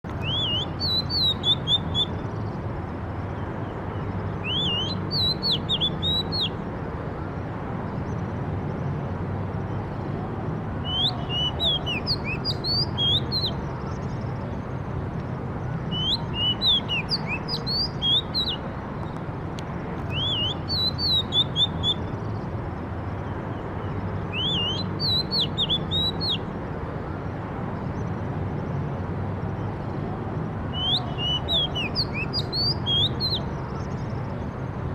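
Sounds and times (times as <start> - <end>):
songbird singing: 0.0 - 8.3, 9.6 - 28.3, 29.4 - 34.8.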